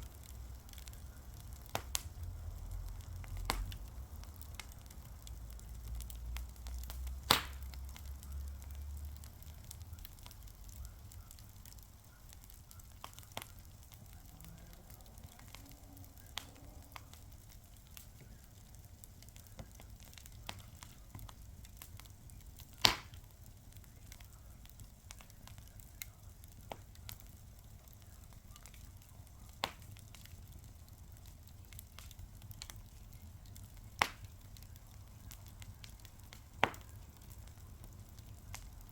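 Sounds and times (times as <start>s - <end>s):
faint steady hiss: 0.0s - 38.9s
fire crackling and popping: 0.0s - 38.9s.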